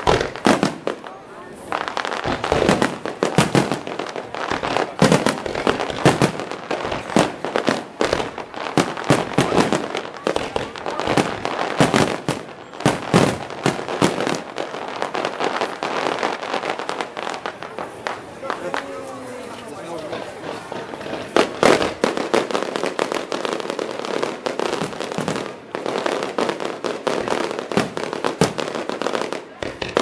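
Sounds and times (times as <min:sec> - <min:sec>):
fireworks bursting: 0:00.0 - 0:30.0.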